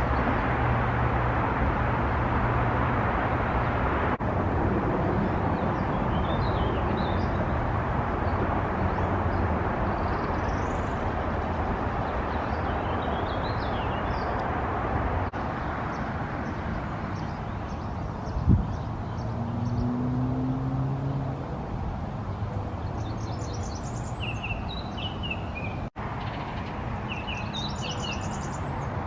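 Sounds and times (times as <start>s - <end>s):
songbird singing warbled phrases: 22.8s - 29.0s.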